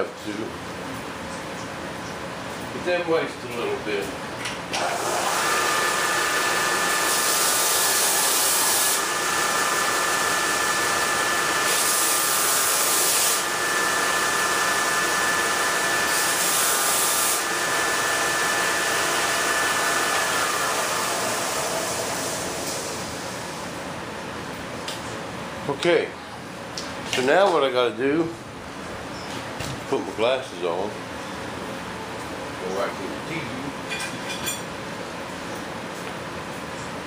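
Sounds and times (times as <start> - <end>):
electric power tool whining: 4.8 - 22.8.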